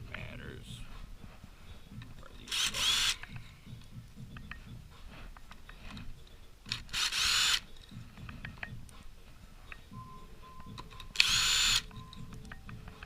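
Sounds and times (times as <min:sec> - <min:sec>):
power driver whining: 0:06.7 - 0:07.7, 0:11.1 - 0:11.9.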